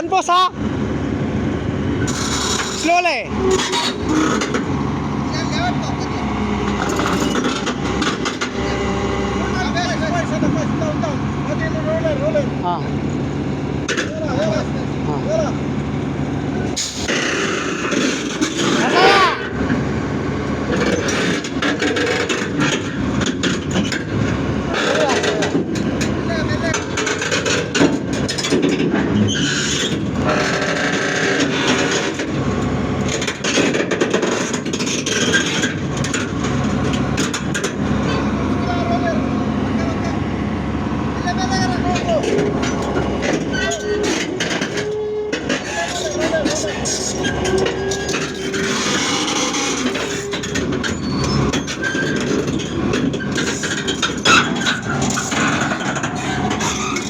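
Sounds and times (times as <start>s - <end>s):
excavator diesel engine under load: 0.0s - 57.0s
heavy machinery running: 0.0s - 57.0s
metal squealing and scraping: 2.0s - 12.4s, 16.6s - 19.6s, 26.3s - 32.5s, 41.2s - 57.0s
short squeals: 18.4s - 19.6s, 42.1s - 57.0s.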